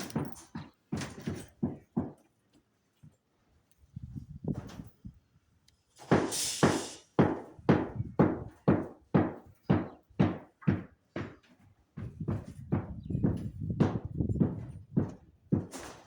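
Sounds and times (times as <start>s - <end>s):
hand tool knocking blows: 6.0s - 11.4s.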